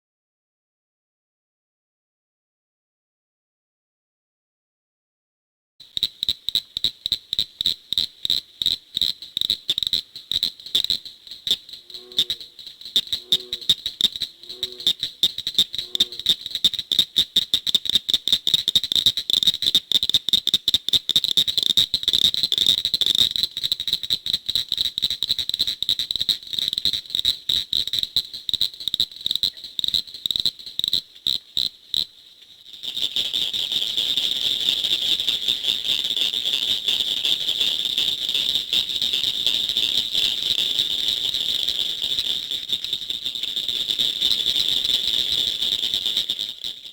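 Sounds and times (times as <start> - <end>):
low frog call: 5.8 - 19.6
frogs calling: 5.8 - 46.9.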